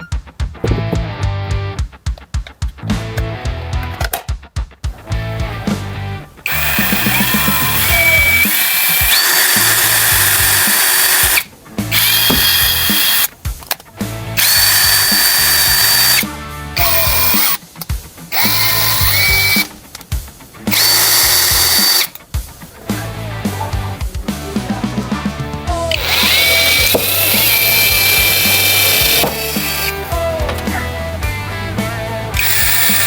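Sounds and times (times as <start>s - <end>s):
power tool motor whining: 5.5s - 13.3s, 14.4s - 17.6s, 18.3s - 19.7s, 20.7s - 22.2s, 25.9s - 31.0s, 32.3s - 33.0s.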